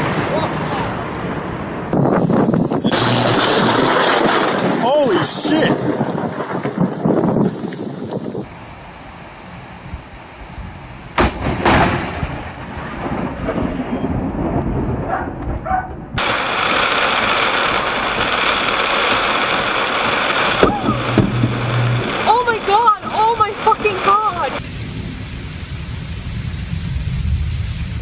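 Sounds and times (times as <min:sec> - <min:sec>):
thunder cracks and rolling thunder: 0:00.0 - 0:08.5, 0:11.2 - 0:25.2
heavy rain hissing: 0:01.8 - 0:11.4, 0:16.2 - 0:28.0.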